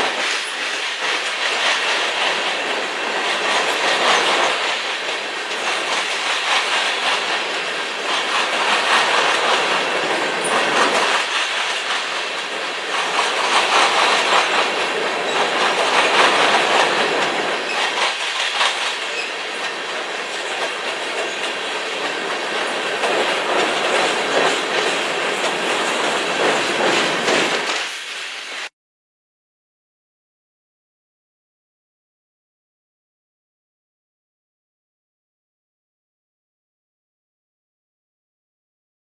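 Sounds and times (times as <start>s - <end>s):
continuous rushing noise: 0.0s - 28.7s.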